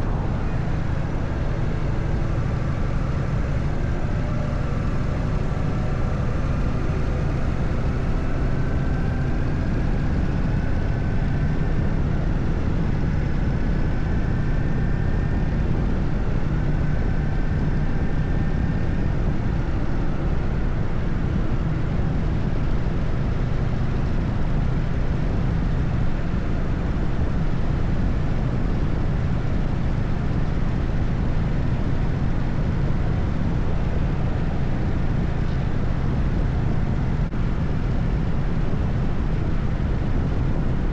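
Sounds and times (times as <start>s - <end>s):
motorcycle engine cruising: 0.0s - 13.0s
faint rising whine: 0.0s - 40.9s
wind and road noise: 0.0s - 40.9s.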